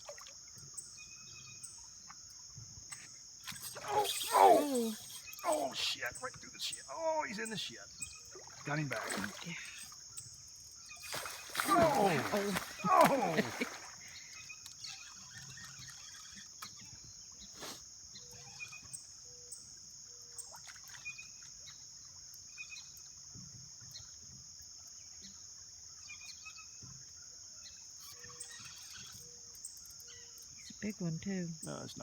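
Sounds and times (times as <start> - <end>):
high-pitched insect drone: 2.9 - 19.1.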